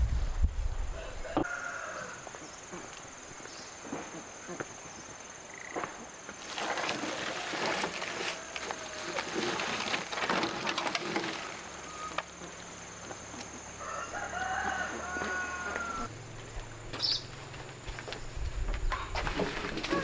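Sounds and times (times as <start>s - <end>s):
rustling scratchy noise: 0.0s - 1.4s, 17.2s - 20.0s
rooster crowing: 0.9s - 2.4s, 8.0s - 9.6s, 13.6s - 16.1s.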